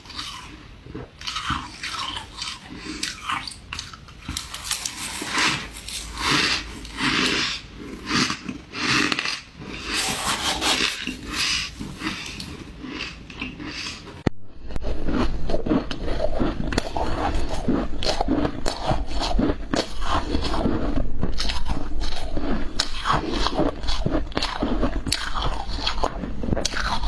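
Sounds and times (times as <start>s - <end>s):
crunching ice: 0.1s - 14.2s.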